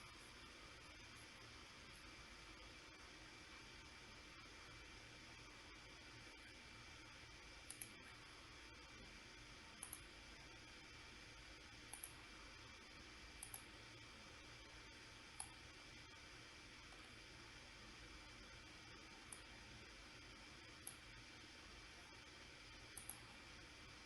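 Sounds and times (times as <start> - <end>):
faint steady hiss: 0.0 - 24.0
computer mouse clicking: 7.6 - 8.0, 9.8 - 10.1, 11.9 - 12.2, 13.4 - 13.7, 15.3 - 15.6, 19.2 - 19.5, 20.8 - 21.0, 22.9 - 23.3.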